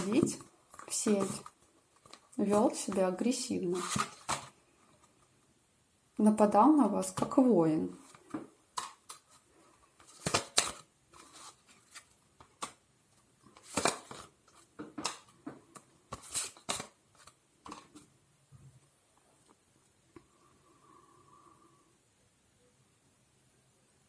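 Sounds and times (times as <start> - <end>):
cards snapping and rustling: 3.7 - 4.6, 10.0 - 12.8, 13.5 - 15.3, 16.1 - 18.0.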